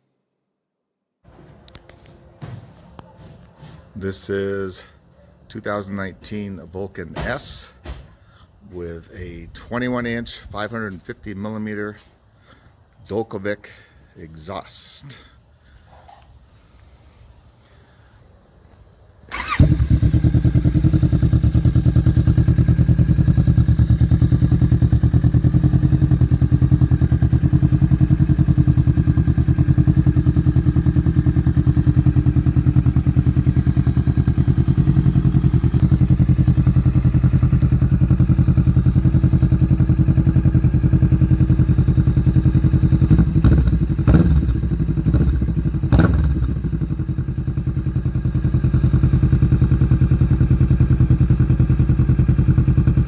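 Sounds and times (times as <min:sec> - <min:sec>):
motorcycle engine idling and revving: 0:19.3 - 0:53.0.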